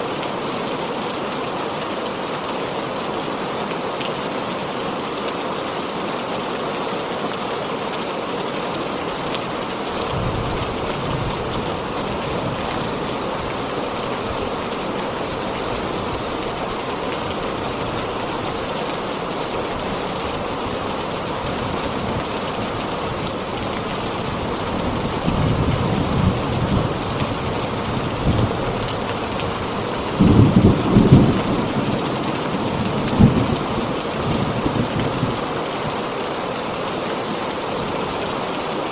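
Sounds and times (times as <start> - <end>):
heavy rain falling: 0.0 - 38.9
thunder rumbling: 29.4 - 35.4.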